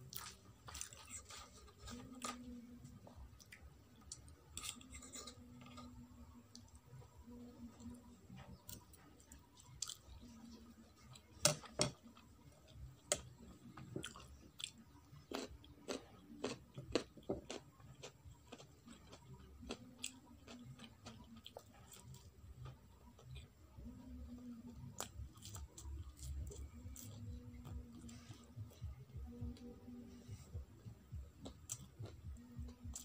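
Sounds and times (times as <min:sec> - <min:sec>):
chewing with wet smacks: 0:12.1 - 0:29.4, 0:31.2 - 0:33.0.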